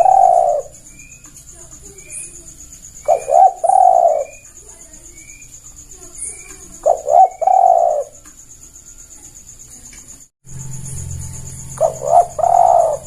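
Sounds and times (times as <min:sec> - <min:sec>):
dove cooing: 0:00.0 - 0:05.0, 0:06.0 - 0:08.2, 0:11.8 - 0:13.0
faint high bird chirps: 0:00.0 - 0:13.0
high pulsing insect hiss: 0:00.0 - 0:13.0.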